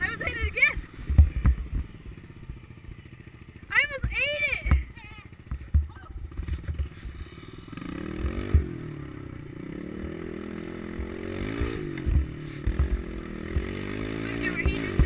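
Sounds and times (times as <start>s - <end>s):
motorbike engine revving: 0.0s - 15.0s
low thumps: 0.6s - 2.6s, 3.9s - 7.2s, 8.1s - 9.0s, 10.8s - 13.9s.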